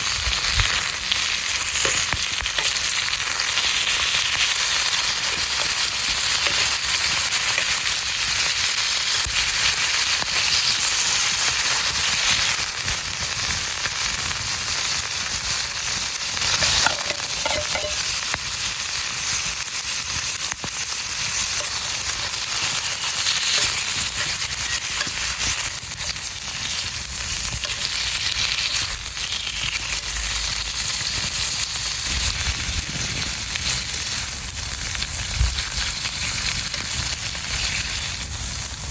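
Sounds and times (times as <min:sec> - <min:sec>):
food sizzling over campfire: 0:00.0 - 0:38.9.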